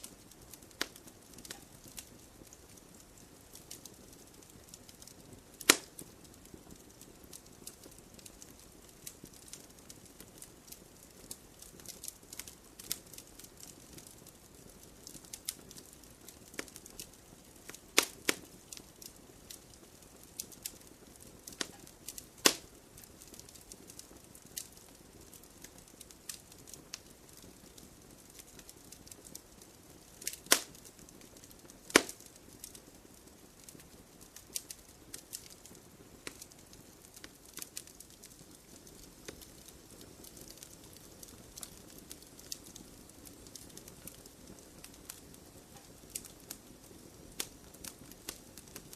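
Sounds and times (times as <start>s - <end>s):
wood campfire crackling: 0.0s - 48.9s.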